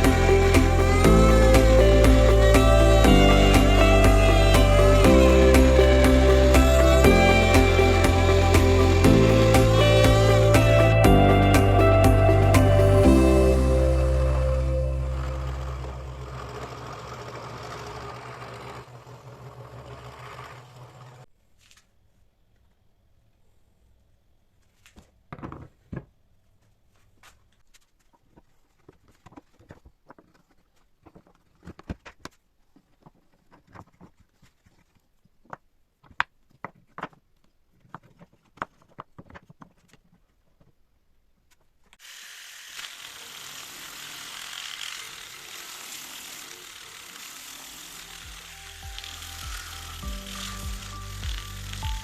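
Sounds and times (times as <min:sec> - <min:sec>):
background music: 0:00.0 - 0:16.5, 0:47.9 - 0:52.0.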